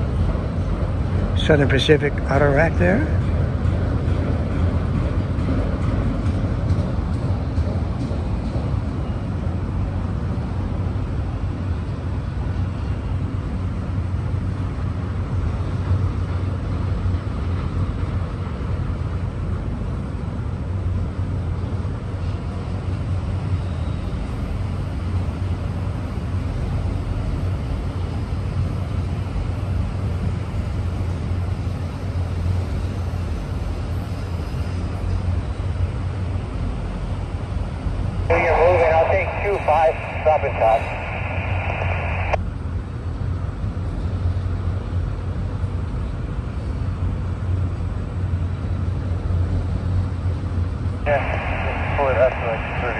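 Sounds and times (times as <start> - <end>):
train wheels rumbling on rails: 0.0 - 38.2.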